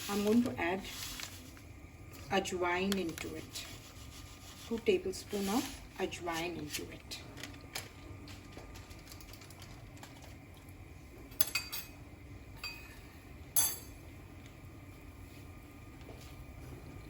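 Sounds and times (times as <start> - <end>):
metal utensils clinking on dishes: 11.4 - 12.0, 13.6 - 14.0.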